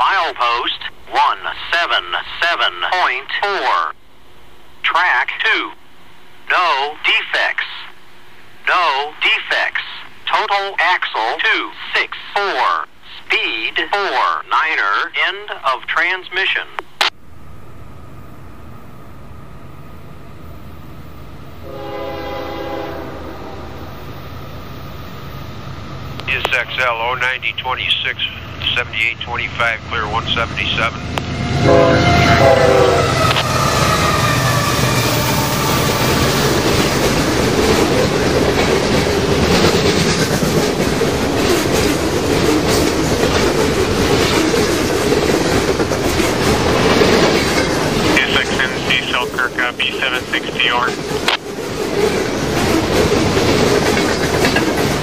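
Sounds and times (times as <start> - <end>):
freight train wheels on rail: 16.8 - 55.0
locomotive horn: 21.6 - 23.9, 31.4 - 34.8.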